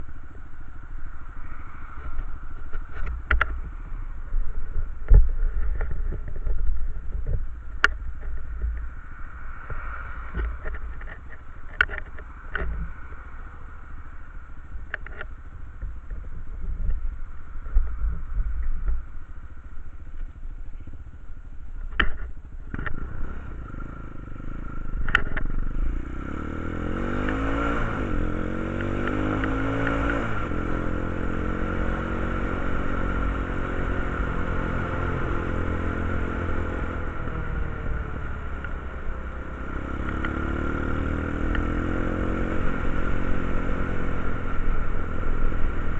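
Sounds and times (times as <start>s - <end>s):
quad bike engine revving: 22.7s - 45.9s.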